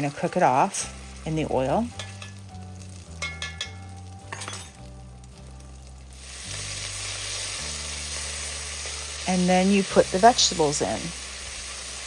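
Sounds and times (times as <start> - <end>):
oil sizzling: 0.0 - 12.0
metal spoon clinking in a pot: 2.0 - 2.4, 3.2 - 4.8.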